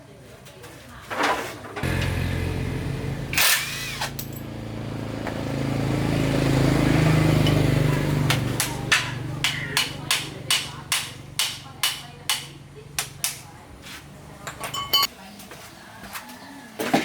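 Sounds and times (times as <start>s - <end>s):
small motorcycle engine running: 1.8s - 11.4s.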